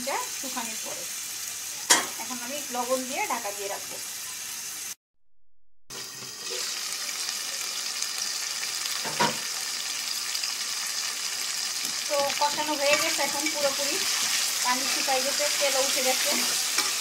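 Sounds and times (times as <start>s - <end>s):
food sizzling in oil: 0.0s - 5.0s, 5.9s - 17.0s.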